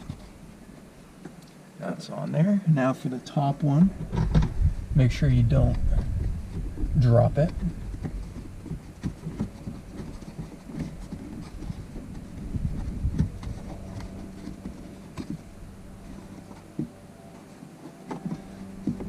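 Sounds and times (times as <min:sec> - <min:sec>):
hands knocking and scraping on plastic: 0:05.6 - 0:19.0.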